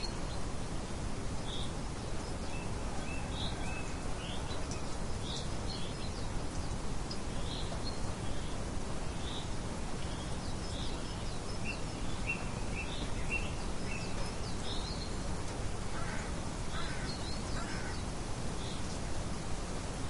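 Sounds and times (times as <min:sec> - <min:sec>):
light wind: 0:00.0 - 0:20.0
birds chirping: 0:01.4 - 0:15.3, 0:15.9 - 0:19.0
lower bird calls: 0:15.9 - 0:18.9.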